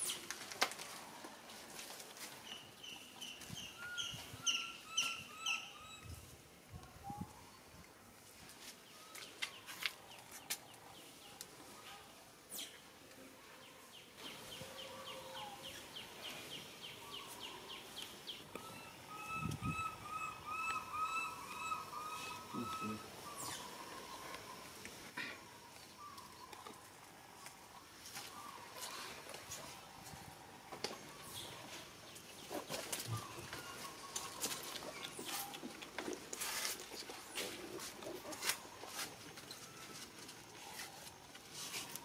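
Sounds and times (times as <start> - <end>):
bird chirping: 2.4 - 6.2, 13.7 - 24.6.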